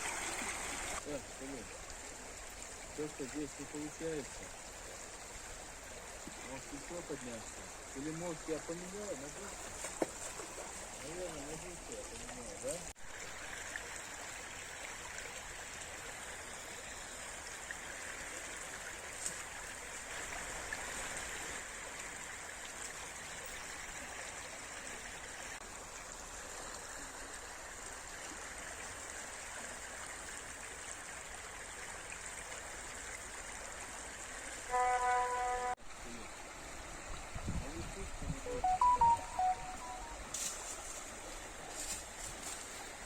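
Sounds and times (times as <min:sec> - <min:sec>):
river water rushing: 0:00.0 - 0:16.5.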